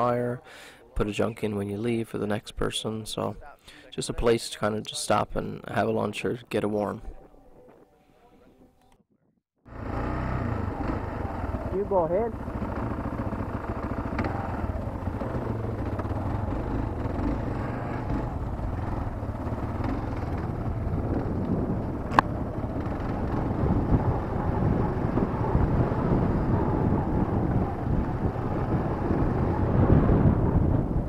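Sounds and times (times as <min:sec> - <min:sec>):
motorcycle engine running: 0:09.7 - 0:31.0.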